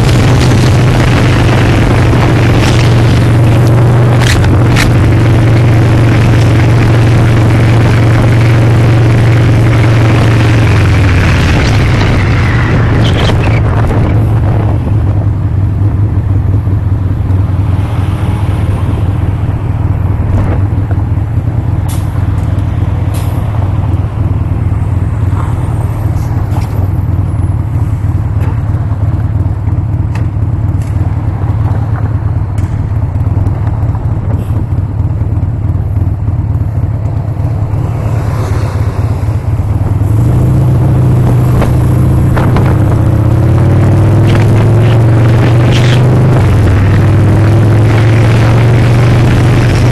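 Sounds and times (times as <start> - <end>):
wind noise: 0.0 - 16.8, 18.2 - 21.2, 37.5 - 49.9
motorcycle engine running: 0.0 - 49.9.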